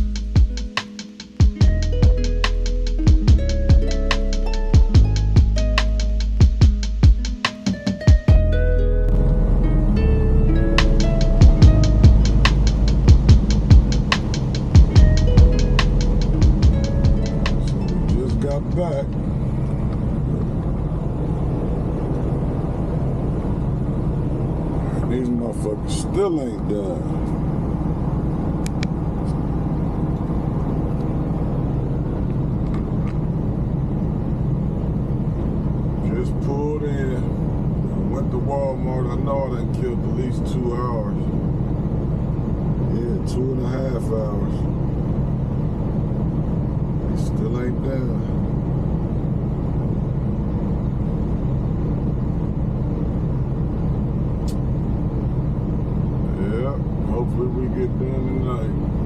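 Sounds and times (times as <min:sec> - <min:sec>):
vehicle engine running: 0:00.0 - 0:59.0
sharp click: 0:54.4 - 0:54.6.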